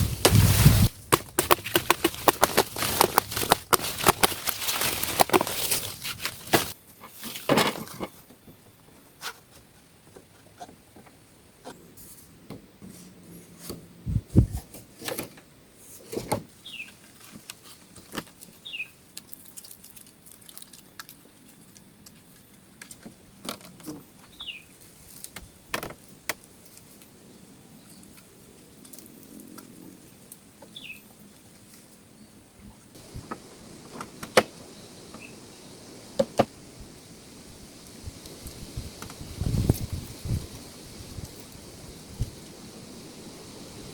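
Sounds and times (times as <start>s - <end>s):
handling clicks and knocks: 1.1s - 6.8s.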